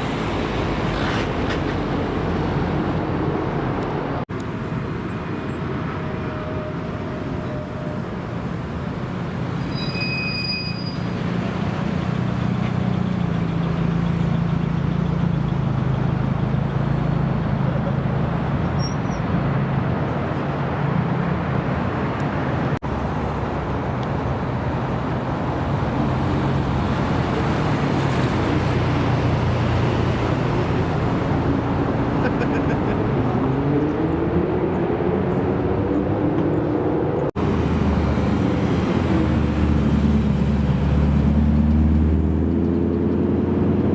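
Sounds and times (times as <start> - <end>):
car engines at low revs: 21.8 - 43.9.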